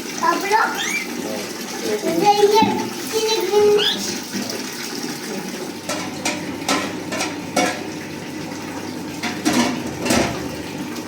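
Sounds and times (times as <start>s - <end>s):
water running: 0.0s - 11.0s
dishes clinking: 5.8s - 7.9s, 9.2s - 10.4s.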